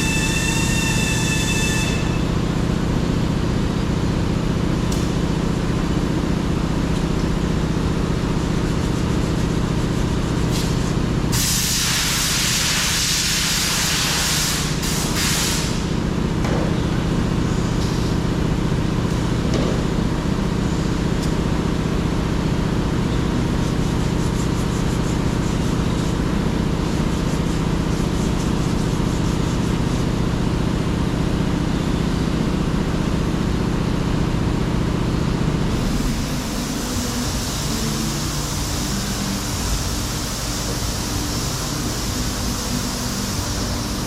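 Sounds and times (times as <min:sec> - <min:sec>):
compressed air hissing: 0:09.0 - 0:16.0
machine hum: 0:14.2 - 0:44.0.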